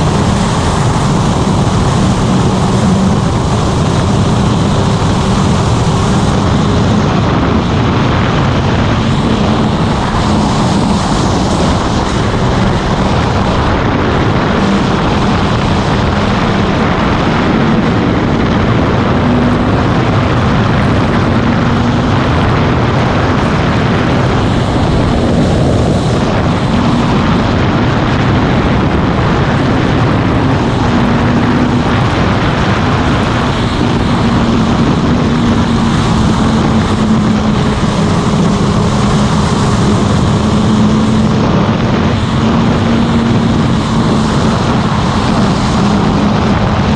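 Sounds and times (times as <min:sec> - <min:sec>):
constant rushing noise: 0:00.0 - 0:46.9
motorcycle engine running: 0:00.0 - 0:46.9.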